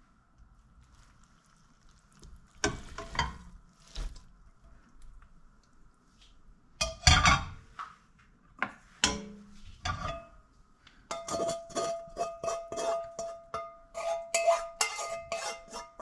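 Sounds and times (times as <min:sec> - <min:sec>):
dishes and utensils clattering: 0:06.8 - 0:07.6, 0:09.0 - 0:10.3, 0:11.1 - 0:16.0.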